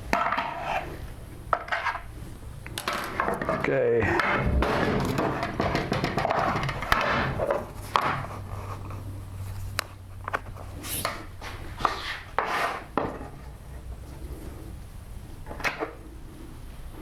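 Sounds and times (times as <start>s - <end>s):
wood rubbing and sliding: 2.8s - 14.8s.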